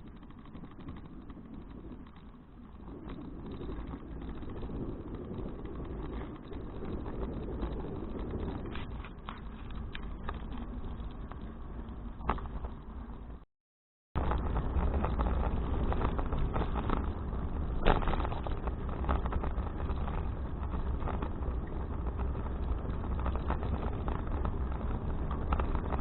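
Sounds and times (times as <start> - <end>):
bicycle rattling clicks: 0.0 - 13.1
road noise: 0.0 - 13.4, 14.2 - 26.0
wind rumbling on microphone: 0.0 - 13.4, 14.2 - 26.0.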